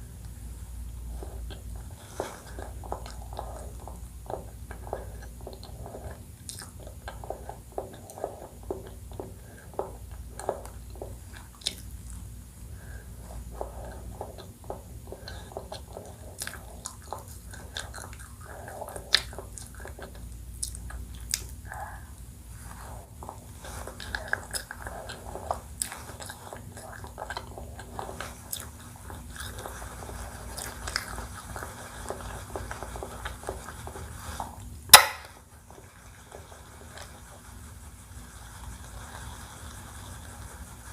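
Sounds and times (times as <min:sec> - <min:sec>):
wet chewing: 0:01.0 - 0:34.7
loud sharp knock: 0:35.0 - 0:35.4.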